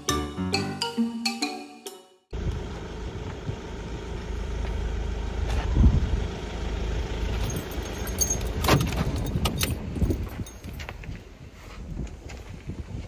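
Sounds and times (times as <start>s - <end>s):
vehicle engine idling: 2.3s - 10.7s.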